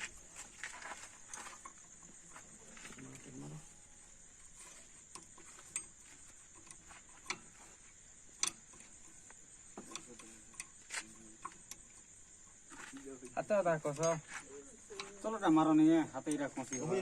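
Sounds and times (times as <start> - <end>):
hand tools tapping on metal: 0.0 - 17.0
steady high-pitched hiss: 0.0 - 17.0.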